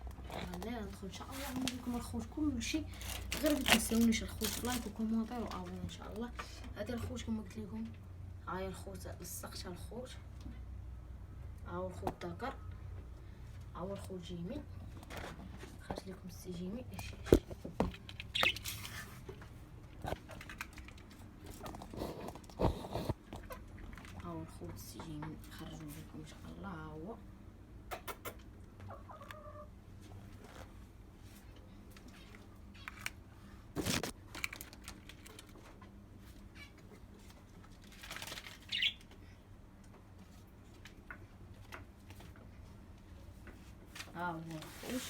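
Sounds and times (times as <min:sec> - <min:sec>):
high bird chirp: 0:18.3 - 0:18.6, 0:38.7 - 0:39.0.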